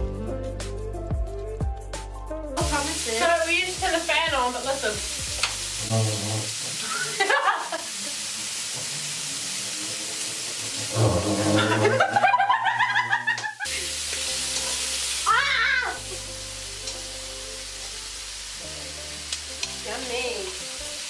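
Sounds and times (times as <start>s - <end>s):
meat sizzling in oil: 2.6s - 21.0s
people laughing: 6.8s - 8.2s, 11.0s - 13.8s.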